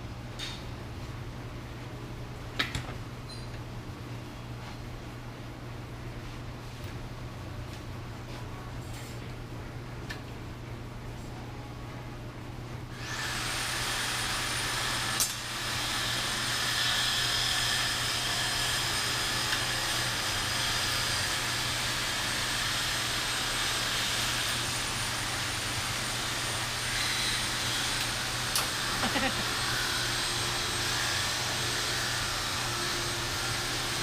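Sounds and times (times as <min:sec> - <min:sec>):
rotary grinder whining: 0:13.0 - 0:34.0.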